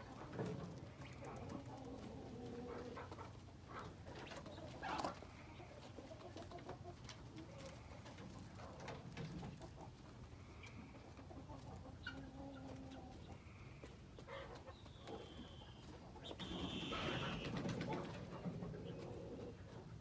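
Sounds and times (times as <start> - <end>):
soft bird calls: 13.2 - 17.6.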